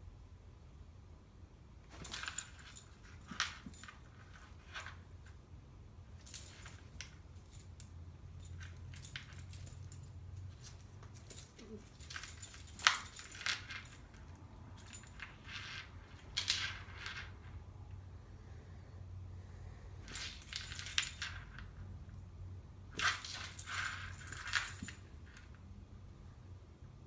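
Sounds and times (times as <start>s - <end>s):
light metallic clinks: 6.2s - 17.3s.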